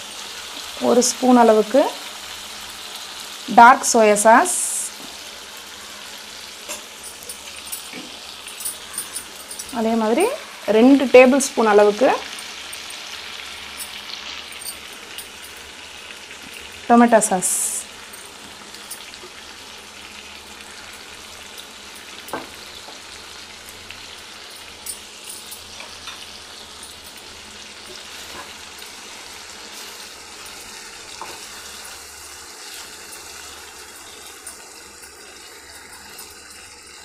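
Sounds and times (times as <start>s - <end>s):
chicken sizzling in a pan: 0.0s - 37.0s
utensils knocking against pan: 22.1s - 22.6s.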